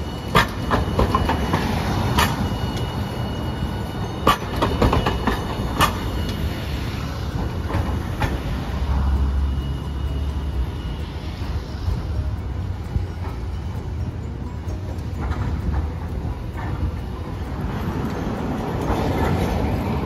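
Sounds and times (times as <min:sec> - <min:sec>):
tram rumbling past: 0:00.0 - 0:20.0
wheels clunking over rail joints: 0:00.0 - 0:20.0.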